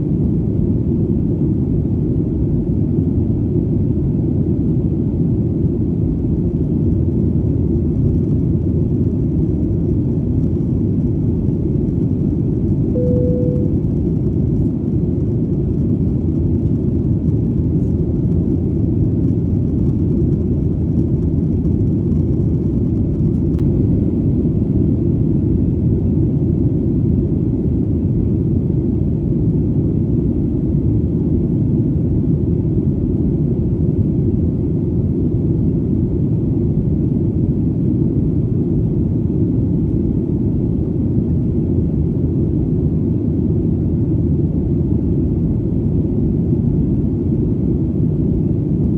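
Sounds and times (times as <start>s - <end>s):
airplane engines rumbling: 0.0s - 48.9s
short steady tone: 12.9s - 14.0s.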